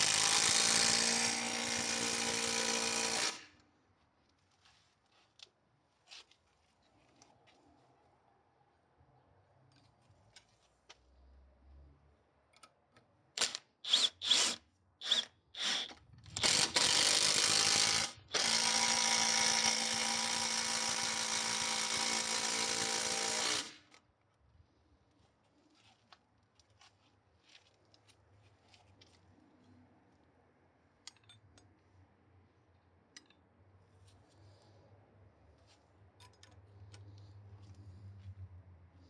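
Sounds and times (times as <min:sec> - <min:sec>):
impact wrench driving screw: 0:00.0 - 0:03.5, 0:13.4 - 0:24.0.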